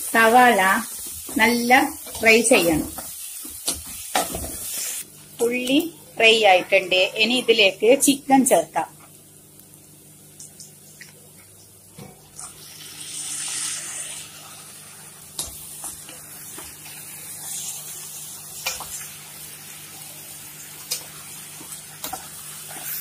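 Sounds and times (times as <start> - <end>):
chicken sizzling in hot oil: 0.0 - 5.6, 12.2 - 23.0.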